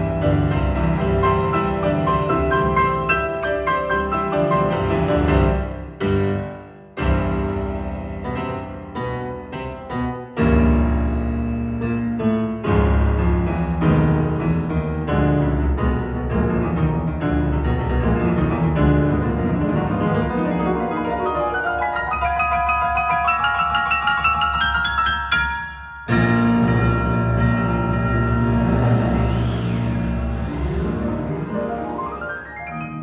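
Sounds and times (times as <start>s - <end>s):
piano music over loudspeakers: 0.0s - 33.0s
deep bass line: 26.1s - 31.8s.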